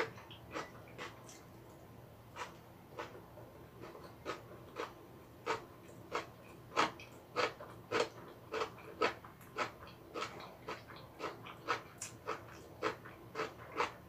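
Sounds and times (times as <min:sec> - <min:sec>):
wet chewing and lip smacks: 0:08.0 - 0:14.0.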